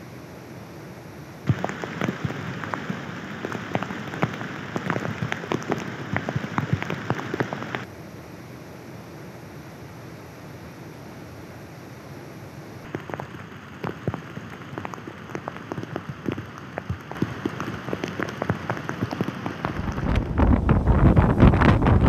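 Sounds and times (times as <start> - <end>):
heavy rain on a hard surface: 1.4 - 7.9, 12.9 - 22.0
steady rushing noise: 1.4 - 8.0, 12.8 - 22.0.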